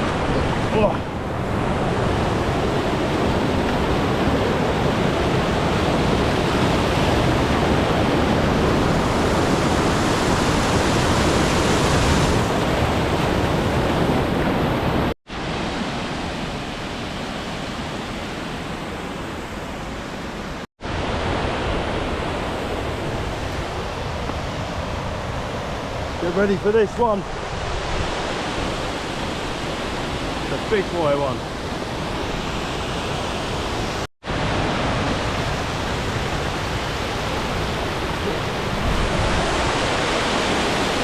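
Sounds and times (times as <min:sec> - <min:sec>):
waterfall rushing: 0:28.1 - 0:41.0.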